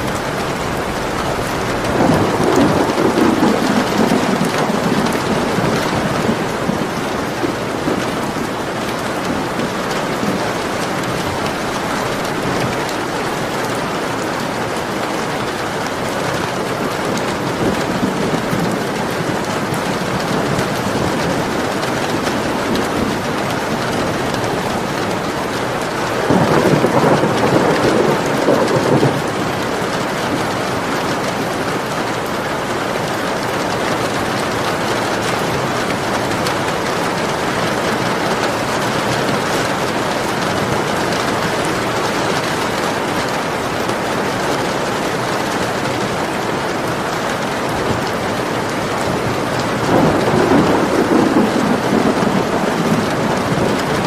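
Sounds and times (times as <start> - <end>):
thunder rumbling: 0.0 - 32.7, 33.4 - 54.0
steady rain: 0.0 - 54.0.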